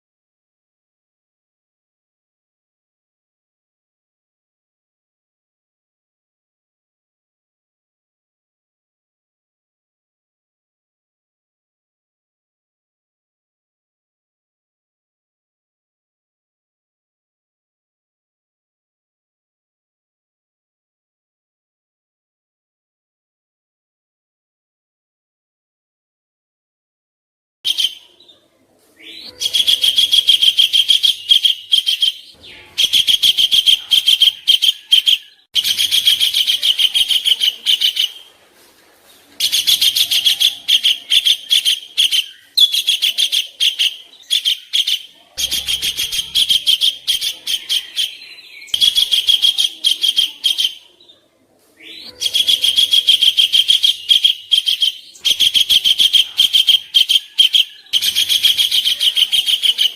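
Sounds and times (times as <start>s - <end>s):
songbird rapid chattering song: 27.7s - 28.3s, 29.0s - 38.3s, 39.4s - 51.1s, 51.8s - 59.9s.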